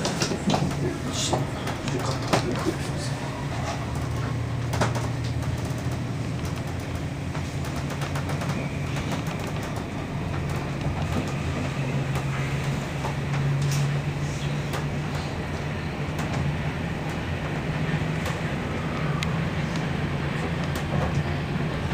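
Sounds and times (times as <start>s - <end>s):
electric train running at speed: 0.0s - 21.9s
clicks and rattles: 3.6s - 11.4s.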